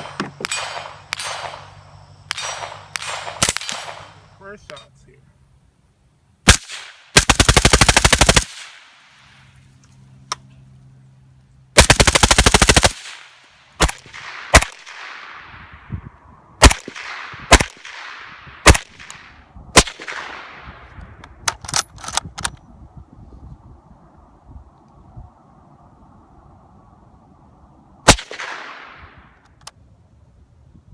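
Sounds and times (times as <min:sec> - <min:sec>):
suppressed gunfire: 0:00.0 - 0:04.3, 0:06.4 - 0:09.1, 0:11.8 - 0:15.6, 0:16.6 - 0:21.9, 0:28.1 - 0:29.8.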